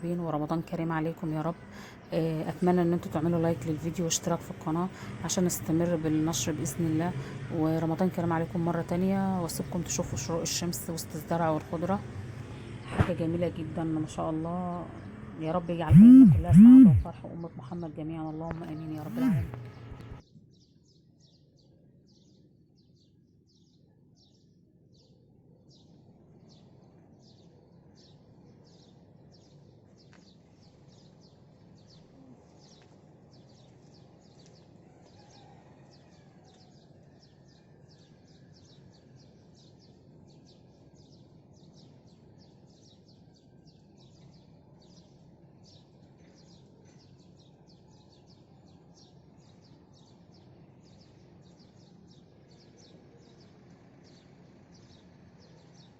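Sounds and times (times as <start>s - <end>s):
small birds chirping: 38.1s - 55.9s.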